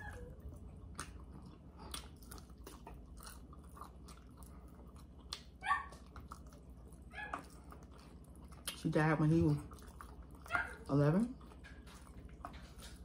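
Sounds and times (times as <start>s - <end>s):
people chewing and biting: 0.0s - 13.0s
wet mouth clicks and smacks: 5.2s - 6.5s.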